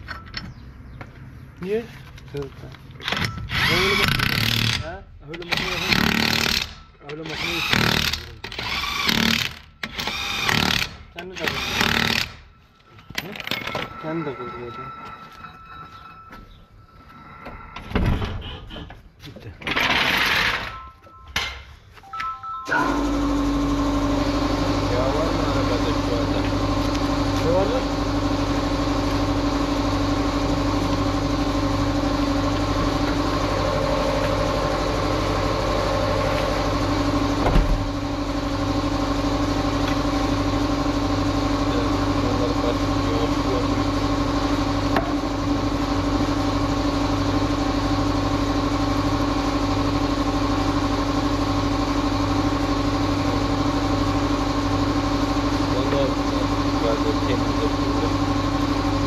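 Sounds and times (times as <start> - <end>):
engine idling: 22.9 - 59.0.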